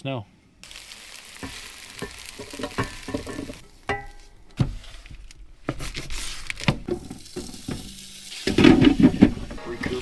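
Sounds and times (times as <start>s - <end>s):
food sizzling in a pan: 0.6s - 4.3s, 6.9s - 10.0s.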